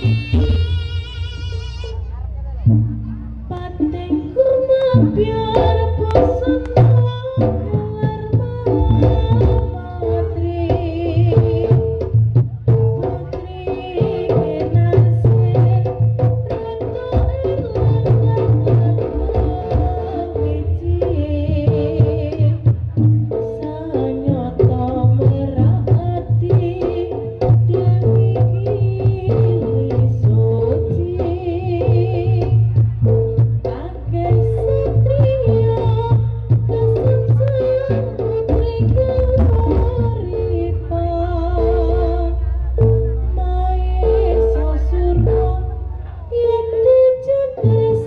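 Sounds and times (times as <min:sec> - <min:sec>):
hand drums: 0:02.6 - 0:48.0
high wavering melody: 0:37.9 - 0:48.0.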